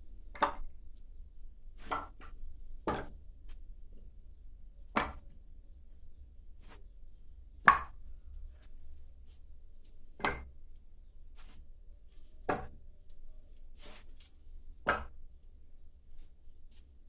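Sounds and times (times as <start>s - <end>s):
wooden logs knocking: 4.9s - 5.3s, 7.6s - 8.0s, 14.8s - 15.2s.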